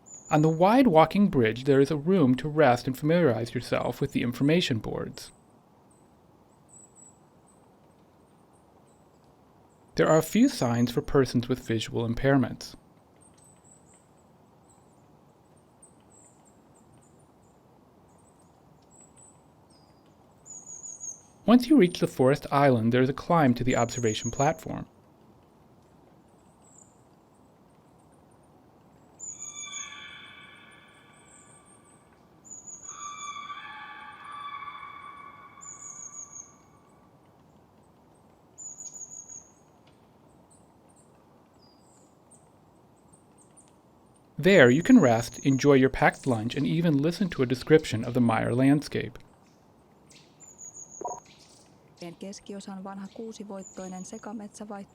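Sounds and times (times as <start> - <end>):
faint high-pitched bird chirps: 0.0 - 0.6, 29.2 - 37.1, 38.6 - 39.6, 50.1 - 54.9
songbird high thin notes: 29.4 - 31.8, 32.8 - 37.0.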